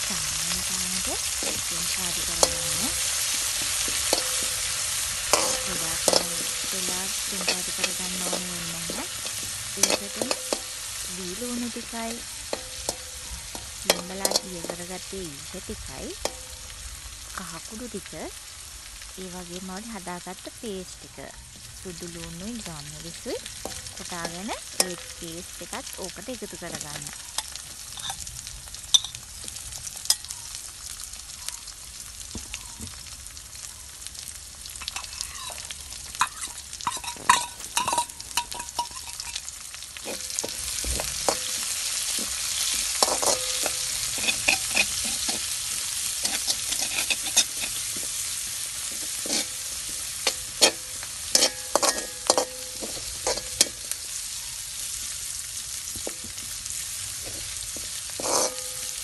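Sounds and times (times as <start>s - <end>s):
onions sizzling in hot oil: 0.0s - 59.0s
metal spoon scraping pan: 0.6s - 15.1s, 23.5s - 26.0s, 26.7s - 28.2s, 34.8s - 54.2s, 57.2s - 59.0s.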